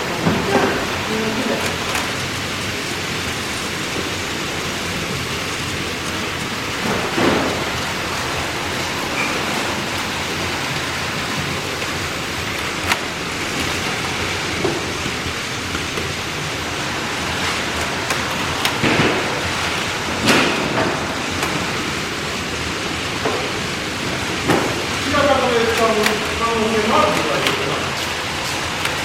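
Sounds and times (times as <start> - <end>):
toy trains rattling whirr: 0.0 - 29.0
sharp clicks and clacks: 17.4 - 19.4, 24.4 - 29.0.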